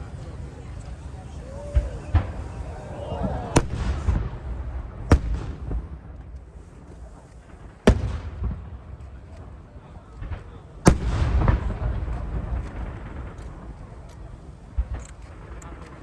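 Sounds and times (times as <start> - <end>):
firework shells booming: 1.7 - 16.0
faint firework pops: 5.0 - 16.0.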